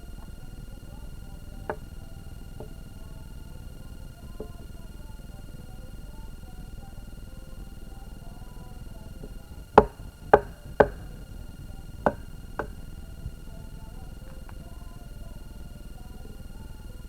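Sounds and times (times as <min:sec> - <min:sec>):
sharp ringing knocks: 0:07.8 - 0:13.3.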